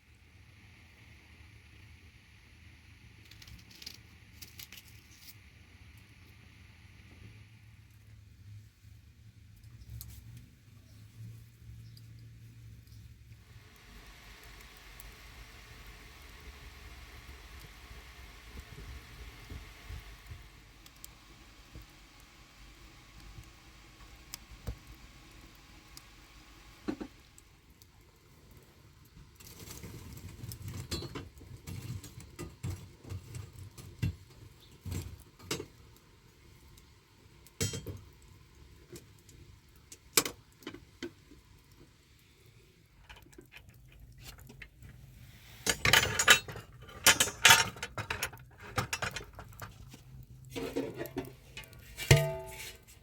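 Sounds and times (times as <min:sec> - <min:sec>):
clinks and rattles: 0:45.7 - 0:49.8.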